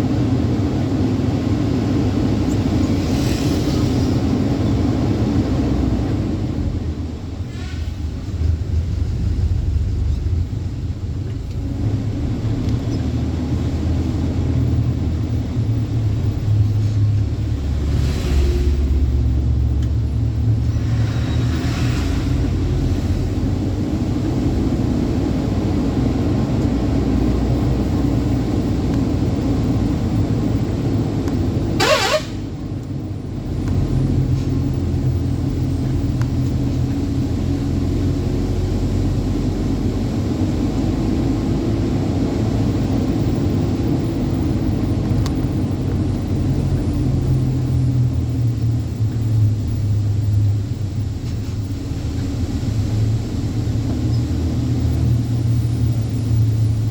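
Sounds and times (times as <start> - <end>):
truck engine rumbling: 0.0 - 56.9
sharp hiss burst: 31.8 - 32.5.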